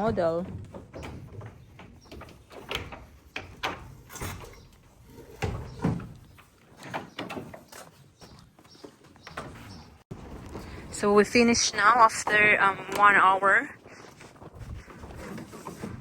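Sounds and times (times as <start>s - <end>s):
knocks and clatters: 0.0s - 10.8s.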